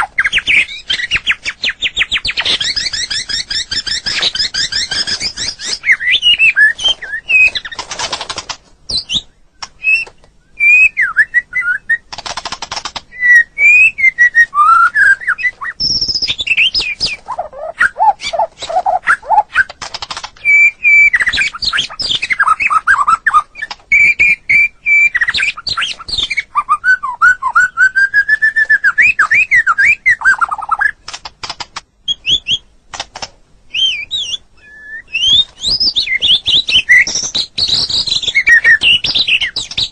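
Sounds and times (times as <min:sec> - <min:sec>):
bird singing whistled phrases: 0:00.0 - 0:07.7, 0:08.9 - 0:12.0, 0:13.1 - 0:19.7, 0:20.4 - 0:31.0, 0:33.7 - 0:39.9
bird rapid rattles: 0:00.1 - 0:10.2, 0:12.1 - 0:13.1, 0:15.8 - 0:26.4, 0:30.3 - 0:31.9, 0:35.2 - 0:39.9.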